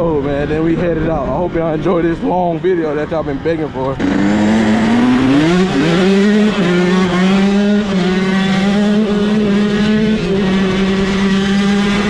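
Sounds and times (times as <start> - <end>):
dirt bike engine revving high: 3.0 - 12.0.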